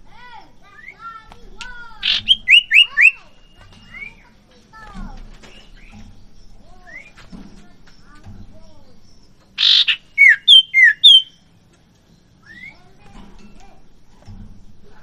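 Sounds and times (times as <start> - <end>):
bird harsh rasping note: 2.0 - 3.4, 9.6 - 11.3
bird downward-slurred whistles: 2.0 - 4.2, 9.6 - 11.4
bird soft chirps: 2.0 - 4.3, 5.4 - 11.4.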